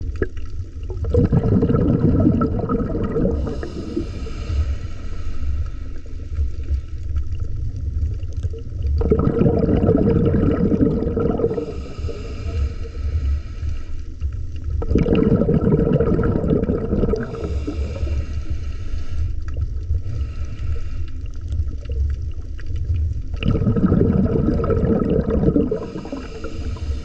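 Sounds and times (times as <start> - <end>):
diver exhaling bubbles: 0.0 - 5.8, 8.7 - 13.4, 14.7 - 18.3, 23.3 - 27.0
regulator hissing inhale: 3.2 - 7.3, 11.4 - 14.3, 17.2 - 21.5, 25.6 - 27.0.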